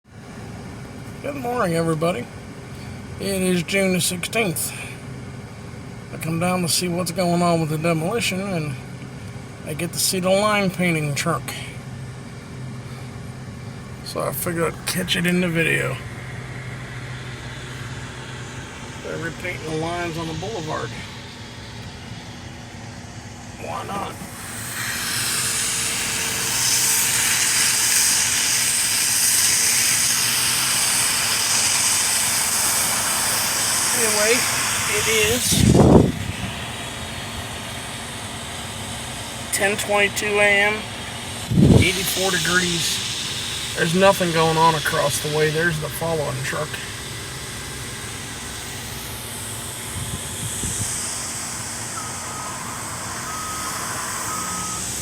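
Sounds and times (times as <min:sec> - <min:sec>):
truck traffic: 0:00.0 - 0:55.0
low engine hum: 0:00.1 - 0:55.0
loud steady hiss: 0:00.4 - 0:55.0
truck backup beeper: 0:50.0 - 0:55.0.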